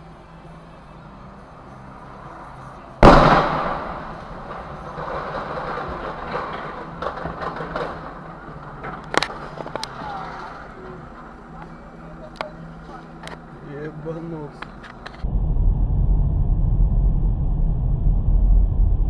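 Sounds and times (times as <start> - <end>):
vehicle collision crash: 3.0 - 10.9
clatter with knocks: 4.4 - 10.6.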